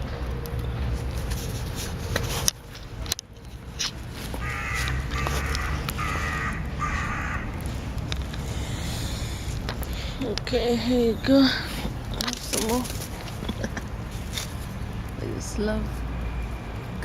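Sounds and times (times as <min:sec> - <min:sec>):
crow cawing: 0:04.4 - 0:07.7.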